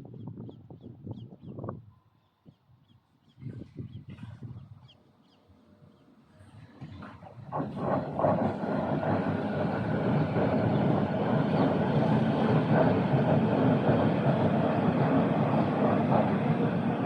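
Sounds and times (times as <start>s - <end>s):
train wheels rolling on rails: 6.7s - 17.0s.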